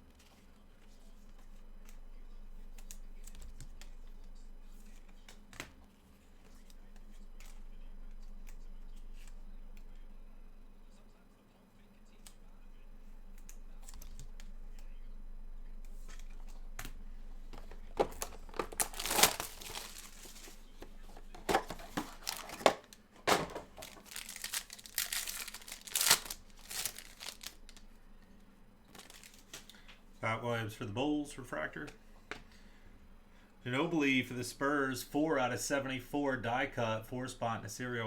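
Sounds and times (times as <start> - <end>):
card wrappers tearing and crinkling: 17.6 - 27.9, 28.9 - 29.8.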